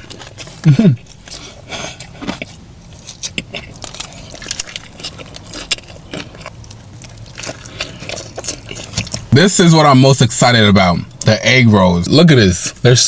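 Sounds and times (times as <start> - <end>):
person chewing crunchy food: 0.0 - 9.4.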